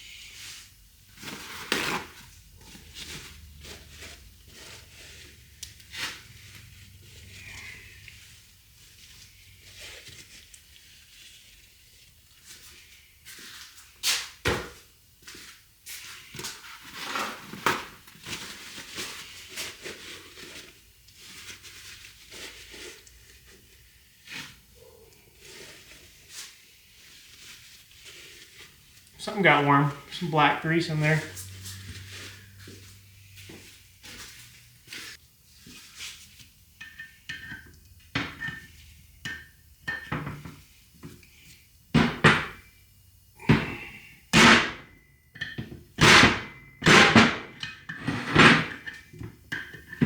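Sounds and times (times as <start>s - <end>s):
scraper scraping and knocking metal: 46.0s - 50.0s.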